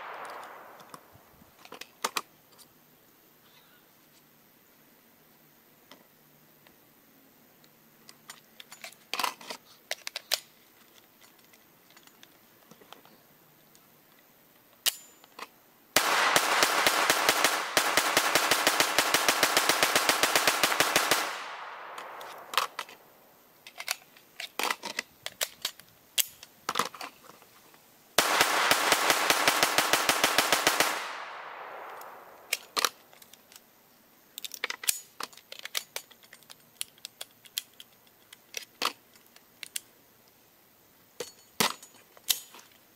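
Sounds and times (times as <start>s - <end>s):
magazine handling clicks and rattles: 0.1s - 2.3s, 8.0s - 12.8s, 17.9s - 27.4s, 28.2s - 33.7s, 34.4s - 39.9s, 41.2s - 42.8s
ringing gunshot echo: 16.0s - 22.7s, 28.2s - 32.5s
rifle firing rapid shots: 16.0s - 22.8s, 28.2s - 32.7s.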